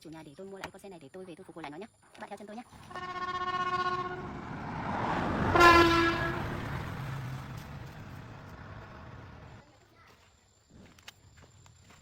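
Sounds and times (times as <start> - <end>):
vehicle passing: 2.7 - 9.6
vehicle horn: 2.8 - 6.8.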